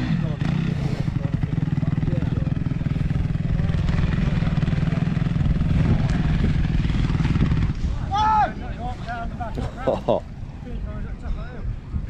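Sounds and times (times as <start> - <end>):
motocross bike engine running: 0.0 - 8.1.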